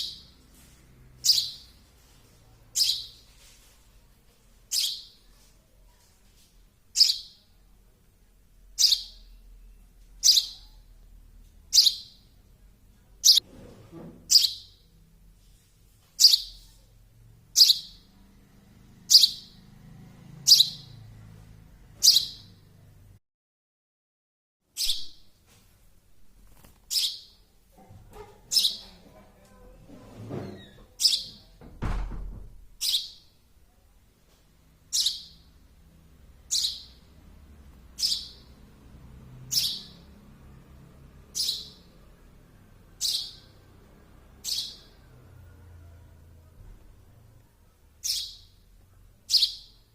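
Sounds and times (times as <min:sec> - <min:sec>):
young sparrow chirping: 0:00.0 - 0:00.4, 0:01.2 - 0:01.8, 0:02.7 - 0:03.2, 0:04.7 - 0:05.3, 0:06.9 - 0:07.5, 0:08.7 - 0:10.8, 0:11.7 - 0:12.3, 0:14.3 - 0:14.8, 0:16.2 - 0:16.7, 0:17.5 - 0:18.1, 0:19.1 - 0:19.6, 0:20.4 - 0:21.0, 0:22.0 - 0:22.6, 0:24.8 - 0:25.3, 0:26.9 - 0:27.4, 0:28.5 - 0:29.0, 0:30.9 - 0:31.5, 0:32.8 - 0:33.3, 0:34.8 - 0:35.5, 0:36.4 - 0:37.1, 0:37.9 - 0:38.6, 0:39.5 - 0:40.2, 0:41.4 - 0:41.9, 0:42.9 - 0:43.6, 0:44.4 - 0:45.0, 0:48.0 - 0:48.6, 0:49.2 - 0:49.9
dull thump: 0:31.6 - 0:32.6.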